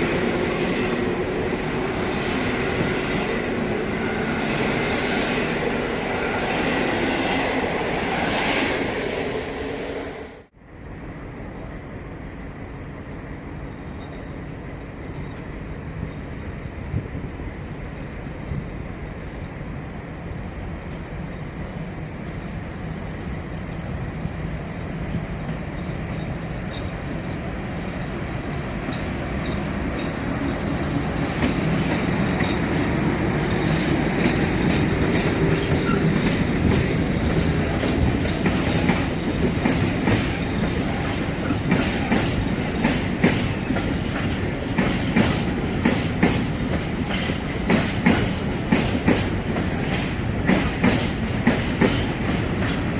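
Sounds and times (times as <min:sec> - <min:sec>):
train passing: 0:00.0 - 0:52.9
wheels clicking over rail joints: 0:28.7 - 0:52.9.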